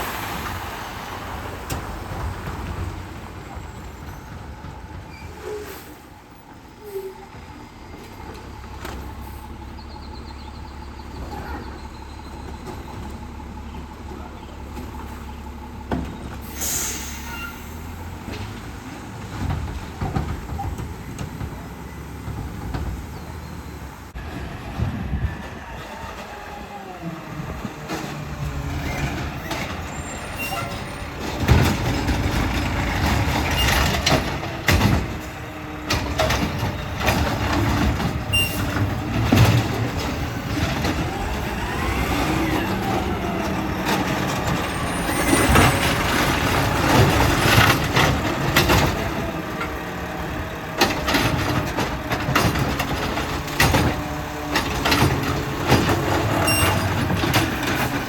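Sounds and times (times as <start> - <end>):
air brake hisses: 16.4 - 17.9
diesel engine running: 26.0 - 58.0.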